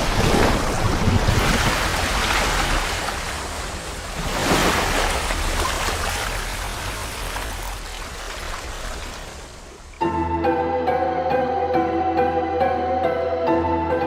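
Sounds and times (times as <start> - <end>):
wind buffeting microphone: 0.0 - 2.9
waves washing in: 0.0 - 10.0.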